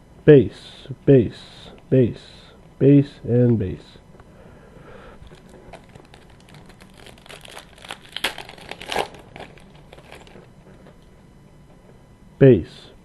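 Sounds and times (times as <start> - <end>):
wrapper tearing and crinkling: 5.2 - 10.5.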